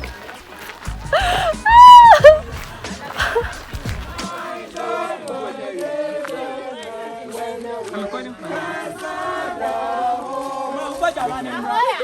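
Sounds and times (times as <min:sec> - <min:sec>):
group singing a hymn: 0:02.5 - 0:12.0.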